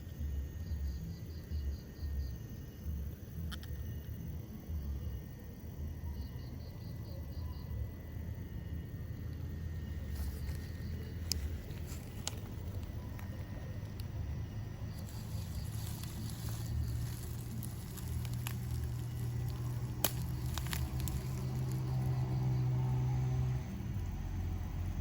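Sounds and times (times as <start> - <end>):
vehicle engine humming: 7.8 - 25.0.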